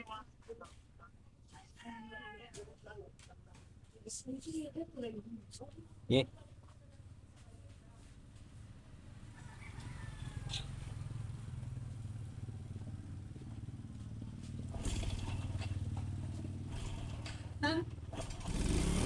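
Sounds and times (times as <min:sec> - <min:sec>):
motorcycle engine idling: 0:05.8 - 0:19.0.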